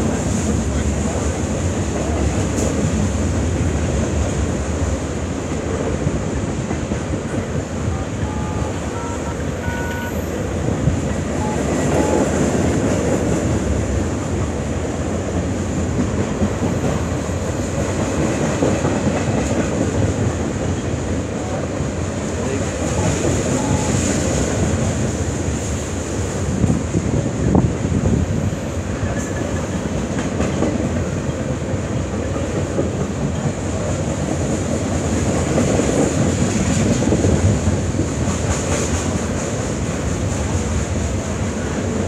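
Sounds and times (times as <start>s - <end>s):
freight train rolling past: 0.0s - 42.0s
steel wheels rattling on rails: 10.2s - 42.0s.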